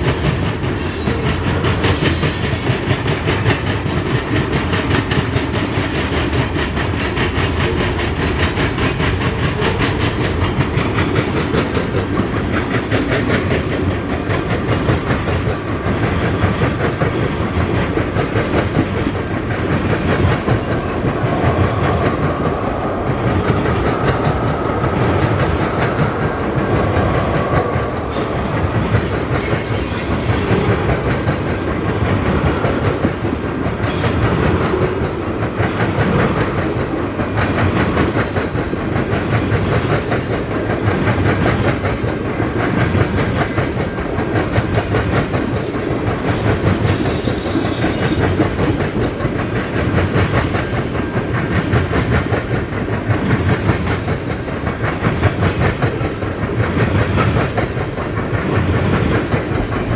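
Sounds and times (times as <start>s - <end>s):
freight train wheels clacking: 0.0s - 59.9s
high wheel squeals: 29.4s - 30.8s.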